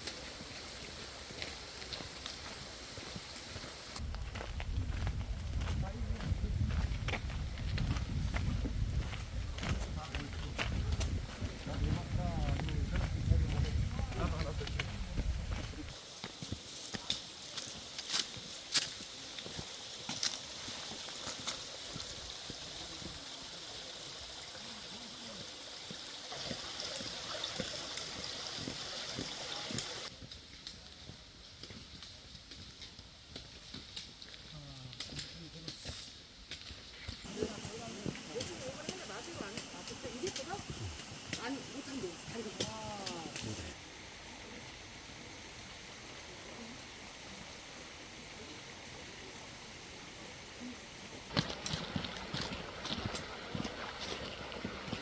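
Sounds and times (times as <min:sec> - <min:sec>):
mountain stream rushing: 0:18.6 - 0:30.1, 0:37.2 - 0:55.0.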